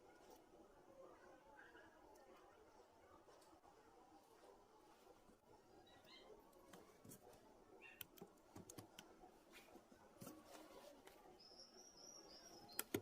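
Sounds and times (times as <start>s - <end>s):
faint high chirp: 11.2s - 13.0s
faint small clicks and taps: 12.7s - 13.0s.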